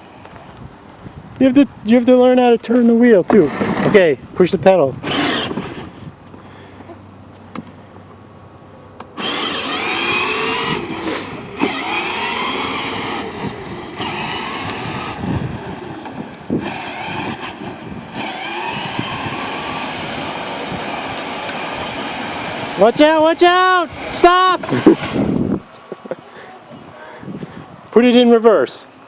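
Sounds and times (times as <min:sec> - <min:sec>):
toy car electric motor whine: 0:05.0 - 0:06.0, 0:09.0 - 0:25.6.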